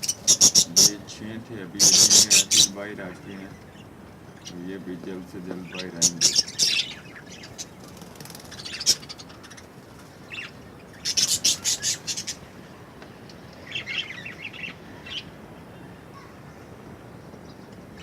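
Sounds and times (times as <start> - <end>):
budgerigars chirping: 0.0 - 12.5, 13.6 - 15.3.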